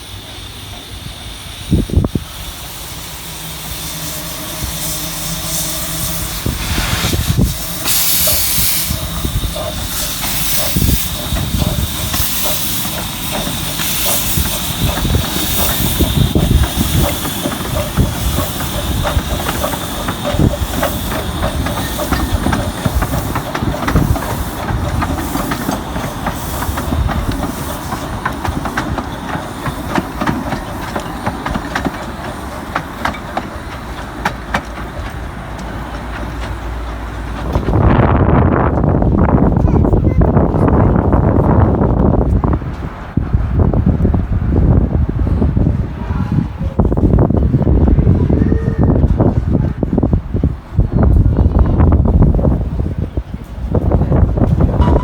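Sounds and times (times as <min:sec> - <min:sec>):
bursts of steam: 0:00.0 - 0:34.9
train wheels clicking over rail joints: 0:00.0 - 0:46.0, 0:48.9 - 0:55.0
steam locomotive hissing: 0:00.0 - 0:55.0.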